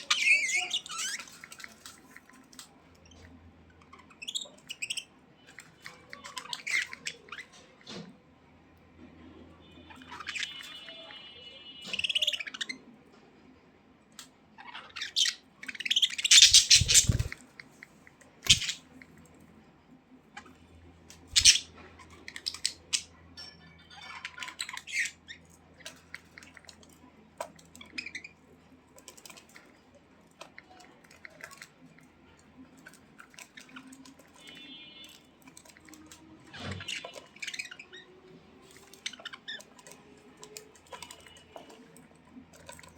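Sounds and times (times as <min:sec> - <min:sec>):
budgerigars chirping and chattering: 0:00.0 - 0:01.8, 0:05.8 - 0:07.7, 0:09.9 - 0:11.0, 0:14.6 - 0:17.4, 0:18.4 - 0:18.9, 0:21.3 - 0:23.2, 0:24.0 - 0:26.7, 0:36.6 - 0:38.1, 0:38.7 - 0:39.8.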